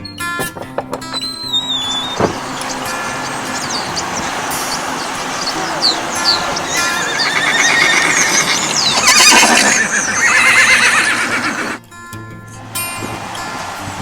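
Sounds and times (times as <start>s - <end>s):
horse whinnying: 1.0s - 11.8s.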